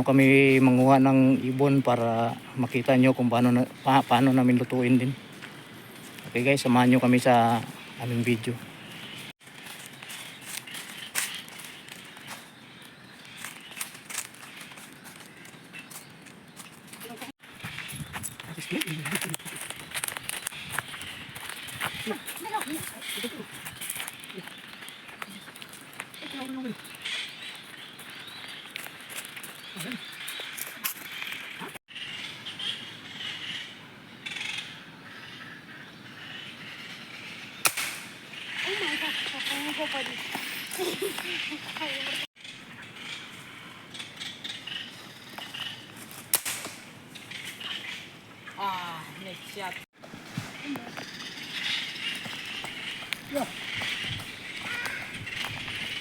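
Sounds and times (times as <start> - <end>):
footsteps on leaves and twigs: 0.0 - 31.8, 37.6 - 42.4, 49.6 - 56.0
birds chirping: 0.0 - 46.2, 46.8 - 56.0
insects chirping: 31.9 - 46.0, 50.6 - 56.0
sharp crack: 37.6 - 38.2, 46.1 - 46.9.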